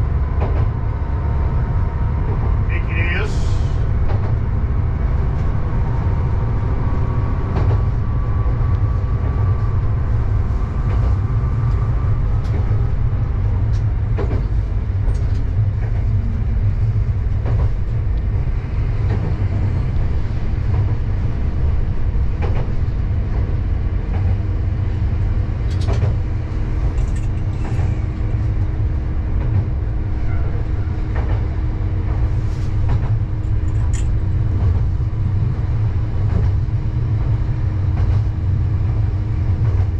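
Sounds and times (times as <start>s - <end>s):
train engine and wheels rumbling: 0.0s - 39.9s.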